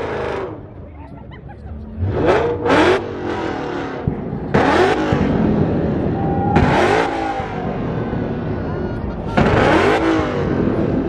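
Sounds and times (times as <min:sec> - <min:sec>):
car engine revving: 0:00.0 - 0:00.9, 0:01.7 - 0:11.0.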